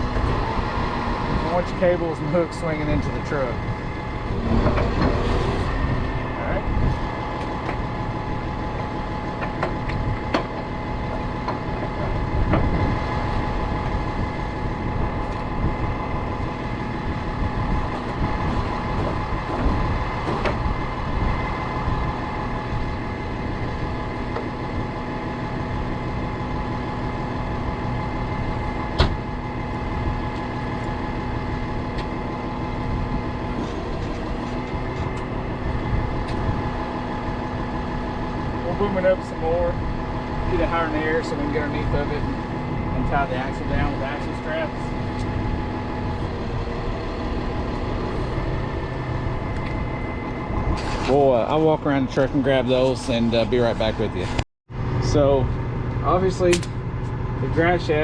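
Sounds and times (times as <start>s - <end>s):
hydraulic winch whine: 0.0s - 53.8s
truck engine running: 0.0s - 58.0s.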